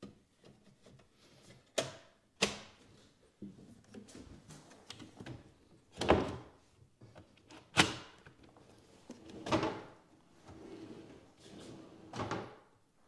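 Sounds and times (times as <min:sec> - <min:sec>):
drawer sliding and knocking shut: 0:09.2 - 0:12.7.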